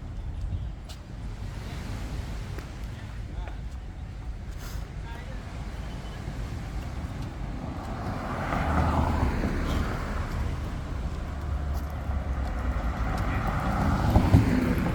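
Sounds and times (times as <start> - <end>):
road noise: 0.0 - 14.9
vehicle engine rumble passing: 4.6 - 14.9.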